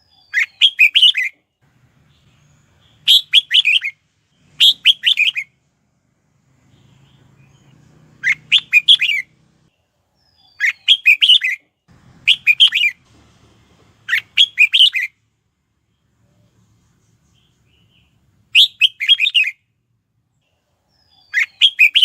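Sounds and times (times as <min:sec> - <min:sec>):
bird singing warbling phrases: 0:00.0 - 0:01.4, 0:02.0 - 0:05.5, 0:06.6 - 0:13.0, 0:14.1 - 0:15.2, 0:17.3 - 0:19.6, 0:20.4 - 0:22.0.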